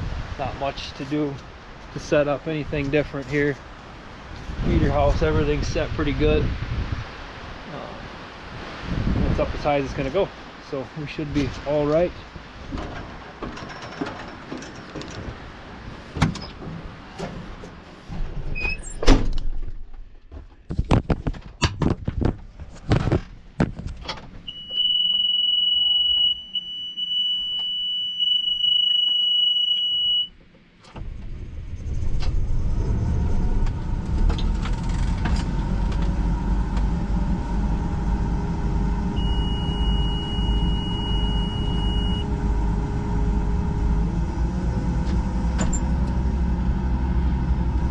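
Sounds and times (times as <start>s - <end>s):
high warning tone: 24.5s - 30.4s, 37.5s - 46.0s
combine engine running: 31.0s - 47.9s.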